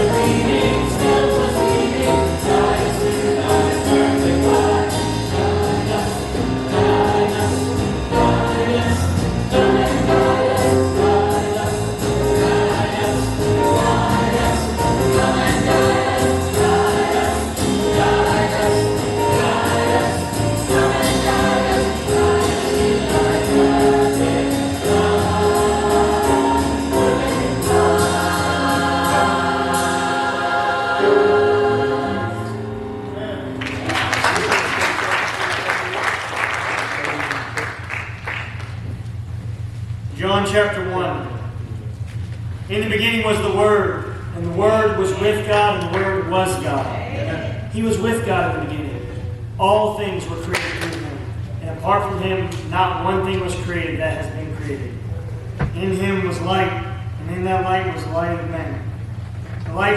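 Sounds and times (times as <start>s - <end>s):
instrumental accompaniment: 0.0s - 34.5s
choir singing jazz-style song: 0.0s - 39.5s.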